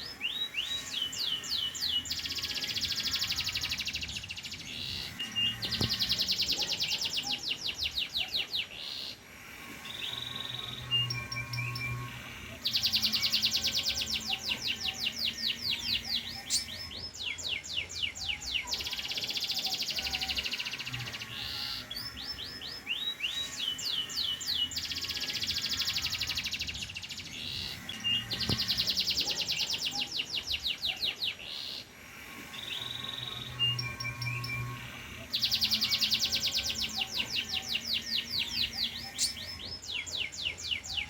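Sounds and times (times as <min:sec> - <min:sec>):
canary singing trills: 0:00.0 - 0:41.0.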